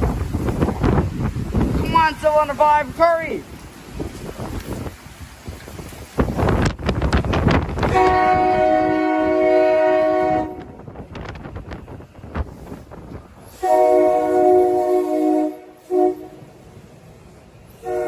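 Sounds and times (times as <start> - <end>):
train air horn blasts: 7.8 - 10.8, 13.5 - 16.6, 17.7 - 18.0.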